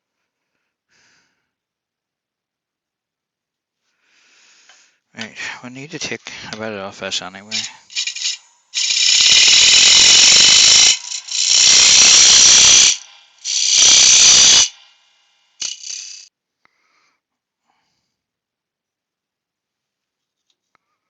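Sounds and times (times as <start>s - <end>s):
lathe tool scraping wood: 7.5s - 14.9s, 15.6s - 16.3s.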